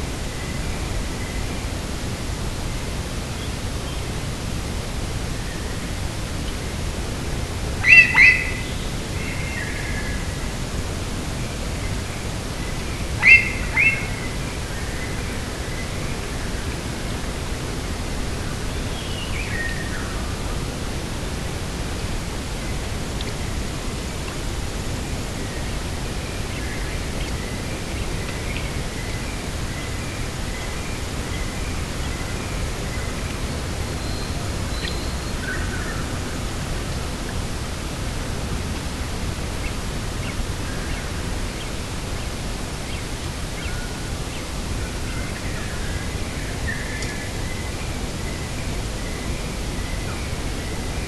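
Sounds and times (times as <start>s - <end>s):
rushing wind: 0.0s - 51.0s
faint bird chirps: 7.8s - 10.3s, 13.2s - 15.9s, 26.5s - 36.4s.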